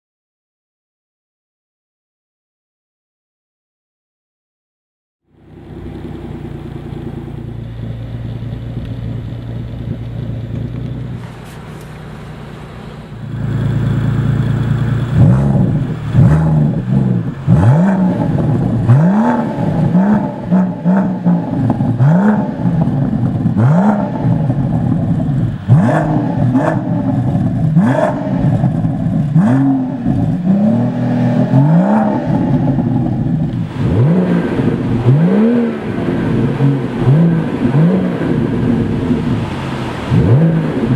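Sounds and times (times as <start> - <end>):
car engine idling and revving: 5.2 - 40.9.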